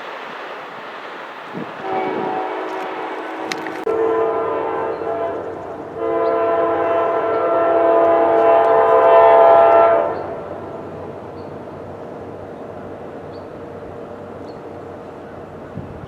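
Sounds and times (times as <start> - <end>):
passing train rumble: 0.0 - 16.0
locomotive air horn: 1.8 - 10.5.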